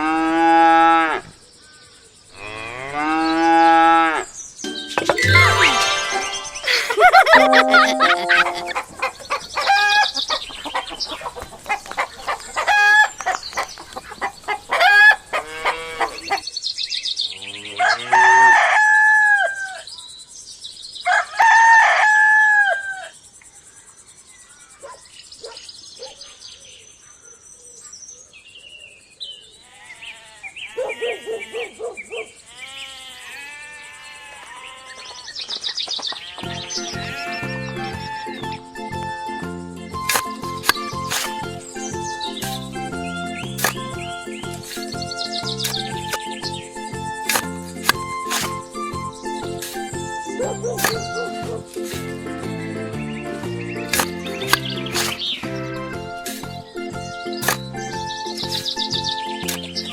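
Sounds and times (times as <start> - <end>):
birds chirping: 4.3 - 8.9, 39.6 - 59.9.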